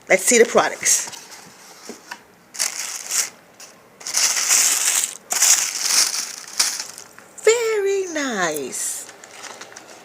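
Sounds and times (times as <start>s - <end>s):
packaging rustling and crinkling: 1.0s - 7.2s, 9.0s - 10.0s.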